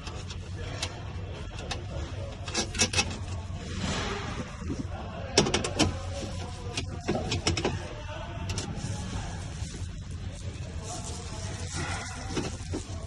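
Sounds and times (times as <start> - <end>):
sharp clicks and knocks: 5.4 - 6.0
rubbing: 8.6 - 13.0.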